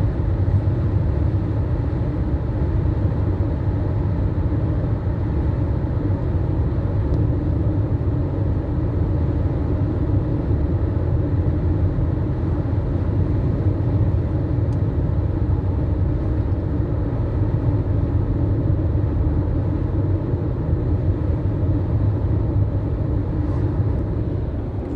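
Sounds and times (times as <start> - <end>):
car engine running: 14.8 - 24.9.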